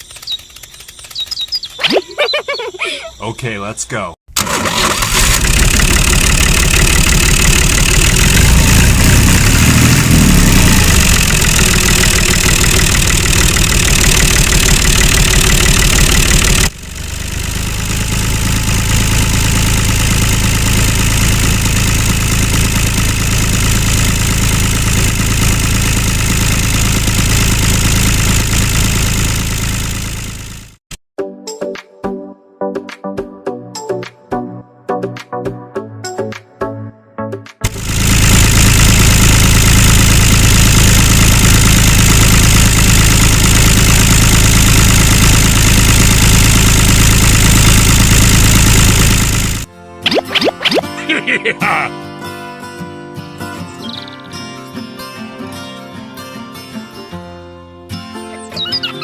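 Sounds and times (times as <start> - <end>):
small tractor engine running: 0.0 - 3.1, 4.3 - 30.8, 37.6 - 50.8.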